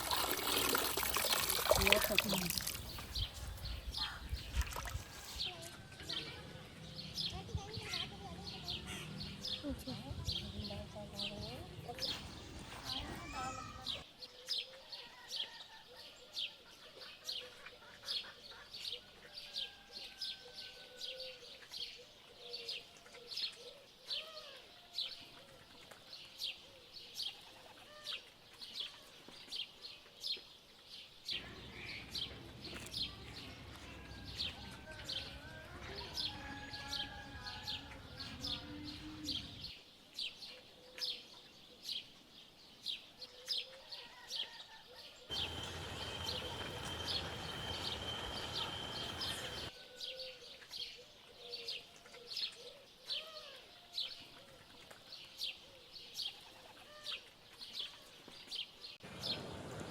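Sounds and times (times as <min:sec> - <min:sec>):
wavering bird calls: 0:31.4 - 0:39.6, 0:45.3 - 0:49.7
steady noise: 0:45.3 - 0:49.7
thin steady high tone: 0:45.3 - 0:49.7.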